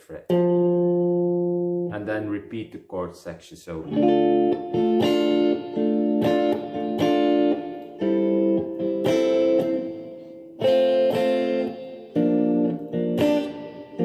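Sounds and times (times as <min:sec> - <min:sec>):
guitar chords ringing: 0:00.0 - 0:02.8, 0:03.7 - 0:14.0.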